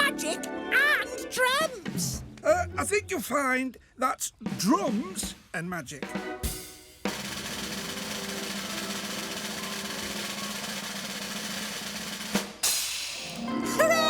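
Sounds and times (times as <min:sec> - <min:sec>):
snare drum roll: 0:06.0 - 0:13.5
cymbal crash: 0:06.5 - 0:13.5.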